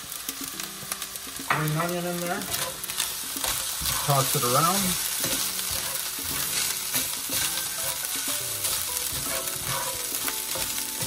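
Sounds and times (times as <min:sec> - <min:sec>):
rice sizzling in a skillet: 0:00.0 - 0:11.0
spatula scraping a pan: 0:02.4 - 0:11.0.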